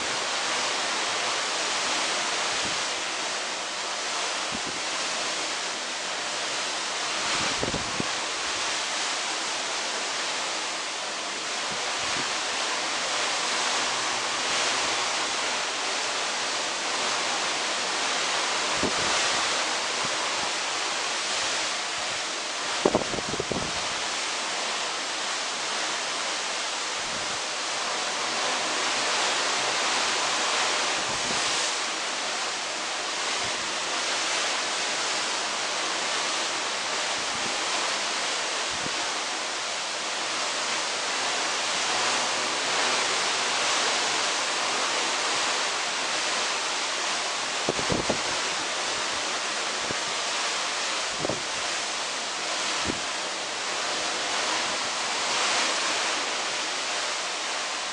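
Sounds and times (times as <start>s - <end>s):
sea rushing: 0.0s - 57.9s
wind buffeting microphone: 7.3s - 8.2s, 22.0s - 24.0s, 47.6s - 48.4s, 51.1s - 51.7s.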